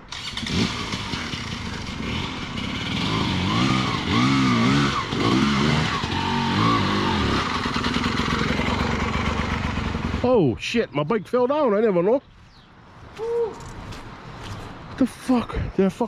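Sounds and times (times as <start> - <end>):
dirt bike engine revving: 0.1 - 10.3.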